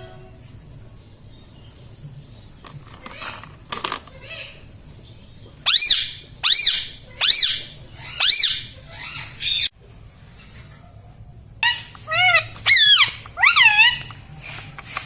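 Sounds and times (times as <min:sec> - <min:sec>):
parakeet squawking: 0:05.6 - 0:09.7, 0:11.6 - 0:14.3.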